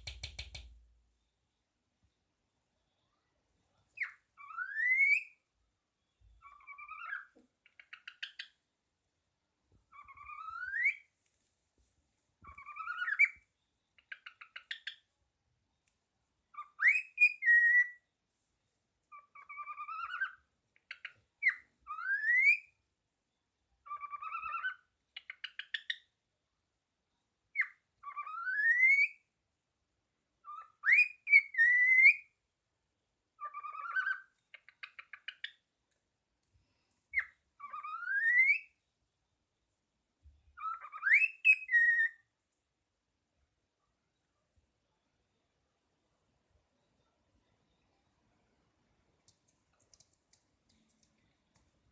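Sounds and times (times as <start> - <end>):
parrot whistling rising notes: 37.6 - 38.7, 40.6 - 42.2.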